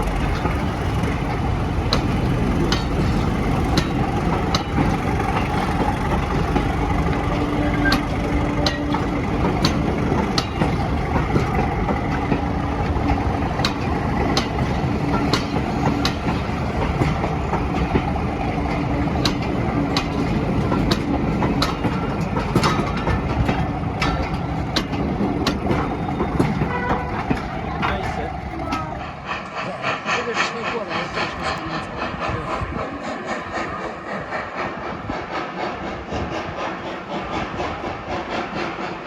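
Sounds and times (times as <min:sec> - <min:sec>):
sharp track clicks: 0:00.0 - 0:30.5
train rumbling: 0:00.0 - 0:39.0.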